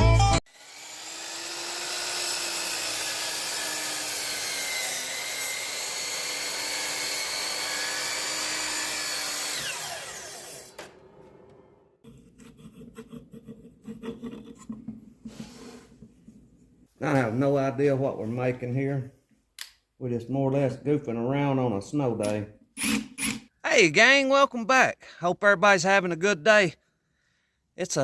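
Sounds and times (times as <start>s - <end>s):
wood lathe motor hum: 0.5s - 11.6s
tool scraping spinning wood: 0.6s - 16.5s.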